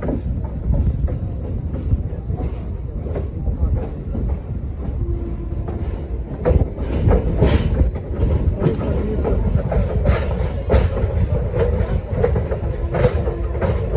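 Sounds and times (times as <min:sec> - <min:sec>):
train rumbling on rails: 0:00.0 - 0:13.9
wheel clacks over rail joints: 0:05.6 - 0:13.9.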